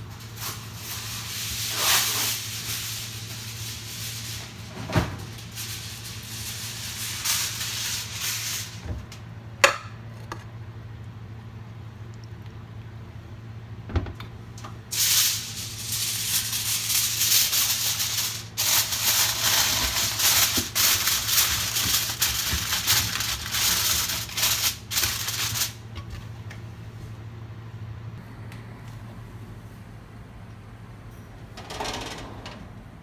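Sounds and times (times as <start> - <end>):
loud rattling rustling noise: 0.0 - 9.1, 14.9 - 26.2.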